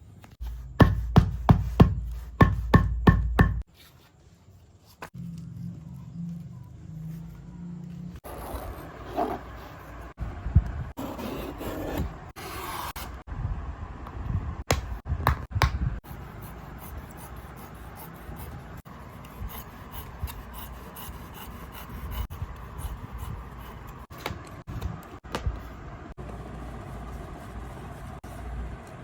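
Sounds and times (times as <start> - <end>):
rubbing and scraping on shoe: 8.2 - 10.2, 16.0 - 24.8.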